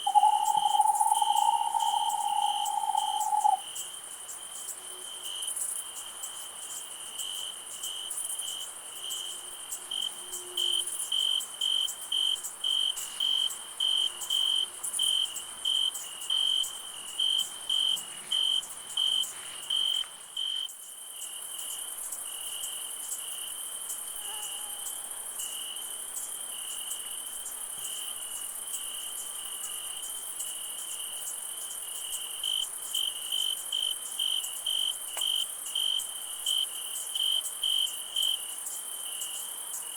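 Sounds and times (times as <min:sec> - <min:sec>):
high-pitched insect buzz: 0:00.0 - 0:03.6
crickets chirping: 0:00.0 - 0:39.9.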